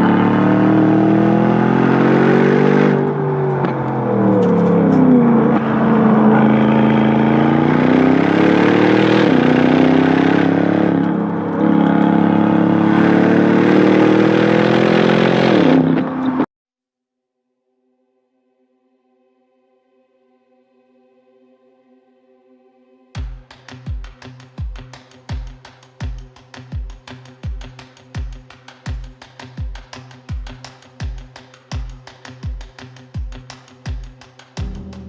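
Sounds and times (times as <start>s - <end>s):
car engine accelerating hard: 0.0s - 16.5s, 34.6s - 35.0s.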